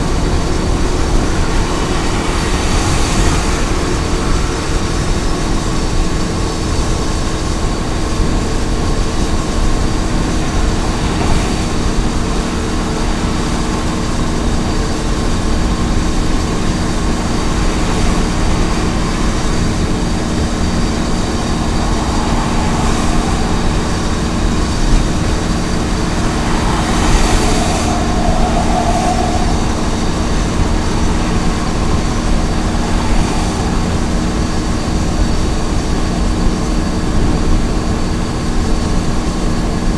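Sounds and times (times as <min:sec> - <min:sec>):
truck engine drone: 0:00.0 - 0:39.1
road noise: 0:00.0 - 0:39.9
brief rushing swell: 0:16.2 - 0:35.1.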